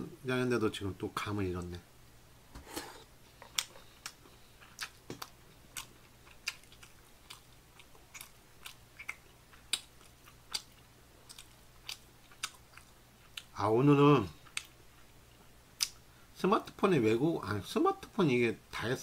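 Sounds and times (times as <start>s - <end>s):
man chewing food: 2.6s - 13.6s, 14.3s - 16.0s.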